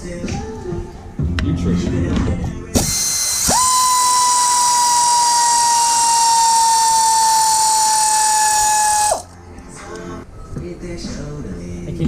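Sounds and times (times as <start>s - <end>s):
power tool motor whining: 2.8s - 9.2s.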